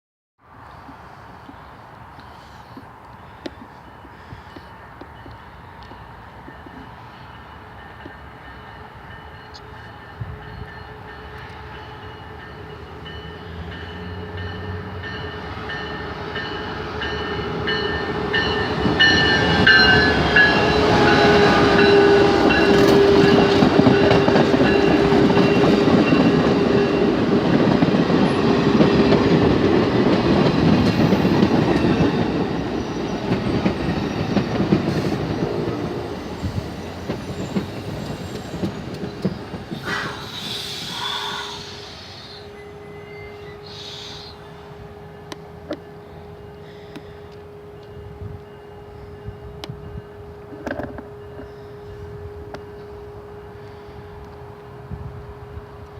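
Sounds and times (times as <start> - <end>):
train wheels rumbling: 0.8 - 55.9
train horn: 19.2 - 27.0, 34.9 - 36.6, 39.8 - 55.8.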